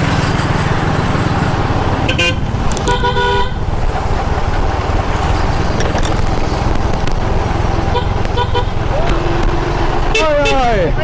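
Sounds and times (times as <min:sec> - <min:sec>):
motorbike engine rumble: 0:00.0 - 0:11.0
wind while riding: 0:00.0 - 0:11.0
vehicle horn tooting: 0:02.0 - 0:03.6, 0:07.9 - 0:11.0.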